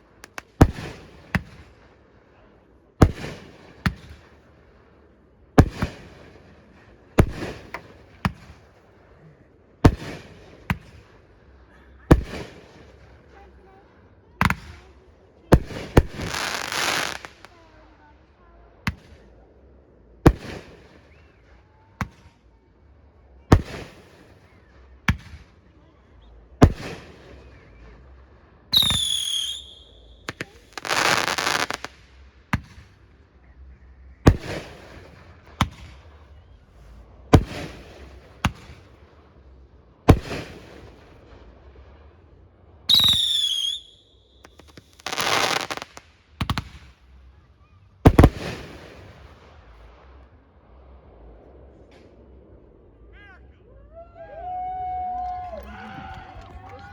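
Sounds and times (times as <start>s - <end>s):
fireworks rushing: 0.0s - 47.4s, 48.0s - 53.5s, 54.4s - 56.9s
whistling fireworks falling whistle: 26.2s - 38.9s, 42.9s - 46.6s, 53.9s - 56.9s
fireworks shells bursting: 28.8s - 32.6s.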